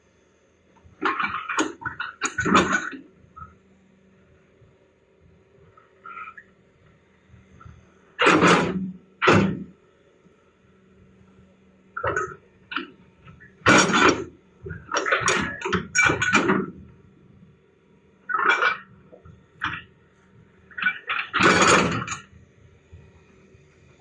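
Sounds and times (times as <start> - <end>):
excavator engine hum: 0.0 - 24.0
excavator noisy bursts: 6.0 - 6.5, 8.2 - 9.7.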